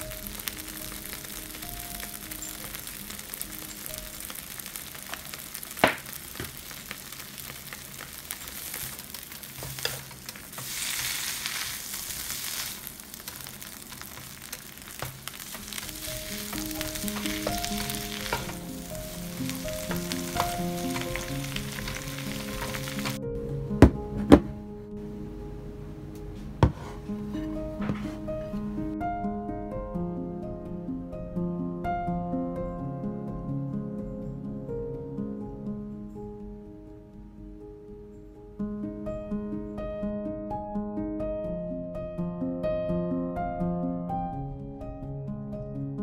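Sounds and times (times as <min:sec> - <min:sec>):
greens sizzling in oil: 0:00.0 - 0:23.2
soft piano music: 0:00.0 - 0:46.0
wooden spatula stirring: 0:06.1 - 0:23.2.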